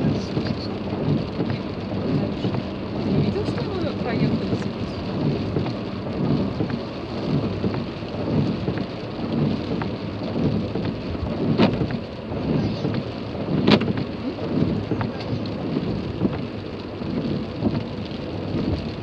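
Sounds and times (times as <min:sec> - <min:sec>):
low pulsing rumble: 0:00.0 - 0:19.0
rain falling on a car: 0:00.0 - 0:19.0.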